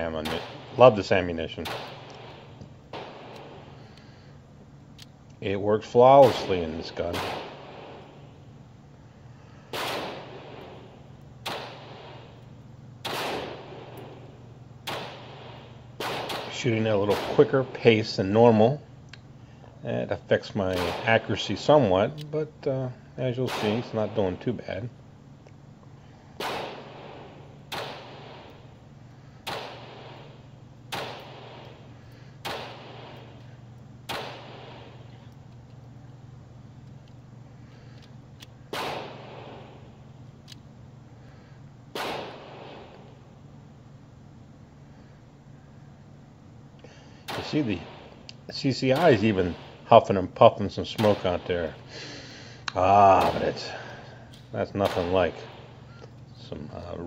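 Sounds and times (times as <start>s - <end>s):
handgun shots with echo: 0.0s - 3.8s, 6.2s - 8.2s, 9.7s - 12.4s, 13.0s - 14.3s, 14.9s - 17.7s, 20.7s - 21.3s, 23.5s - 24.0s, 26.4s - 28.6s, 29.5s - 33.5s, 34.1s - 35.2s, 38.7s - 39.8s, 41.9s - 43.1s, 47.2s - 48.3s, 48.9s - 49.8s, 51.0s - 51.9s, 53.1s - 54.0s, 54.8s - 55.9s.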